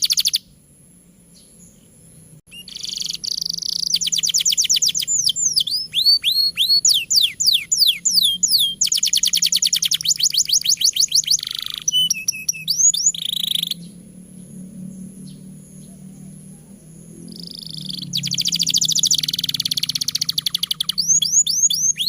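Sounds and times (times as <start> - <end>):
canary singing: 0.0 - 0.5, 1.4 - 22.0.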